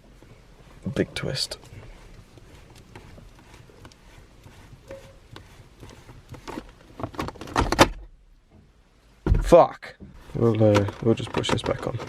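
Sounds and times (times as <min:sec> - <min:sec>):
gear knob clicking and scraping on threads: 0:01.6 - 0:07.6, 0:10.5 - 0:12.0.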